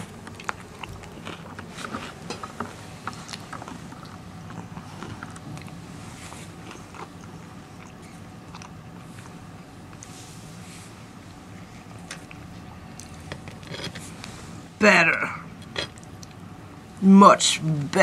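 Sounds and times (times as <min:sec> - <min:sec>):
faint low hum: 0:00.0 - 0:18.0
wet chewing clicks and smacks: 0:00.1 - 0:05.8, 0:06.5 - 0:10.1, 0:11.8 - 0:13.8, 0:15.6 - 0:16.5.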